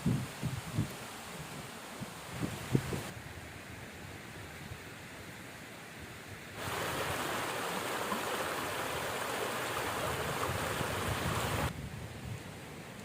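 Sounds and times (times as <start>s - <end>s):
river water rushing: 6.6s - 11.7s.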